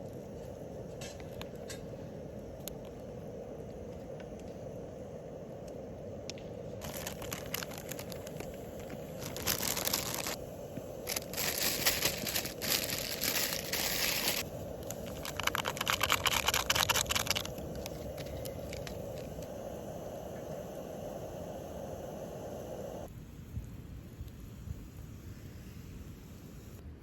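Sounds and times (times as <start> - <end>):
steady low hiss: 0.0 - 27.0
crinkling and rustling: 6.8 - 19.3.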